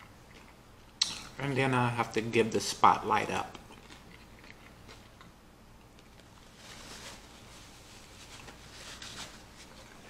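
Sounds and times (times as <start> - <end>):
soft chewing with mouth clicks: 0.0 - 1.4, 3.5 - 6.6.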